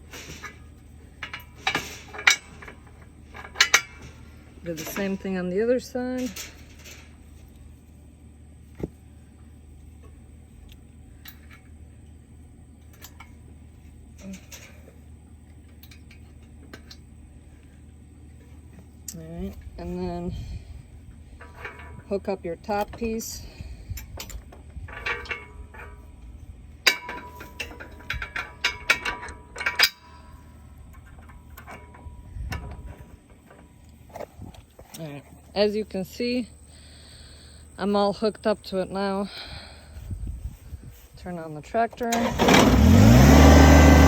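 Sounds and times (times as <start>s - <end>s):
metal clanks of steel hitch: 0.0s - 7.2s, 23.9s - 26.1s, 26.8s - 33.6s
low steady hum: 0.0s - 44.0s
metal parts clicking and tapping: 0.1s - 7.1s, 15.6s - 17.1s, 24.0s - 26.1s, 26.8s - 34.2s.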